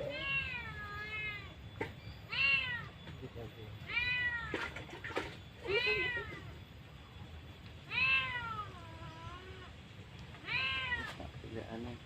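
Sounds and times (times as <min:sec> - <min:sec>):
meow-like animal calls: 0:00.0 - 0:03.0, 0:03.8 - 0:04.8, 0:05.6 - 0:06.6, 0:07.9 - 0:09.8, 0:10.4 - 0:11.3.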